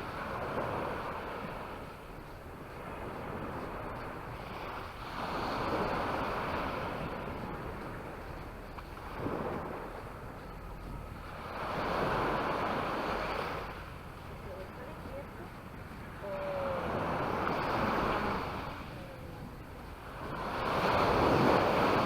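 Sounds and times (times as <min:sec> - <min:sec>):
waves breaking on a beach: 0:00.0 - 0:22.0.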